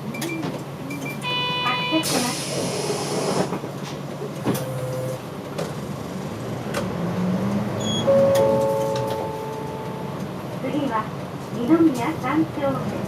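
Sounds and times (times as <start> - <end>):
bus engine drone: 0.0 - 13.0
road noise: 0.5 - 13.0
hiss: 2.1 - 3.5.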